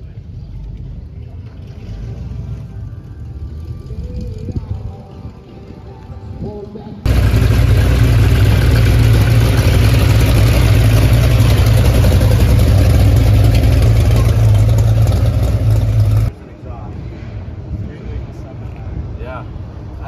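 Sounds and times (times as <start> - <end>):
car engine idling: 7.1 - 16.3.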